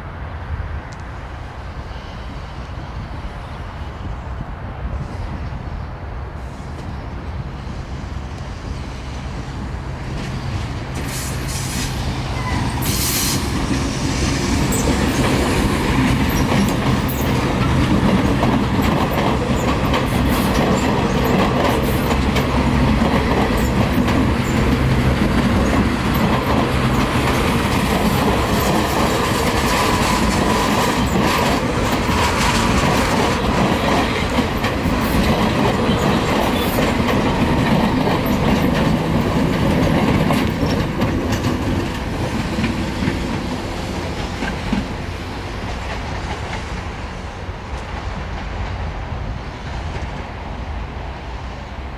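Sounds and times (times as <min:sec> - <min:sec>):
train wheels clattering over rail joints: 0:10.0 - 0:47.0.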